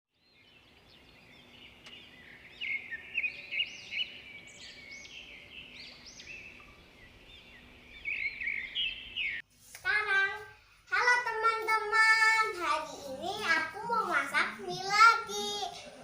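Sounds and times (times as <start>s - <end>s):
birds chirping and singing: 0.2s - 9.4s
faint steady hum: 0.2s - 16.0s.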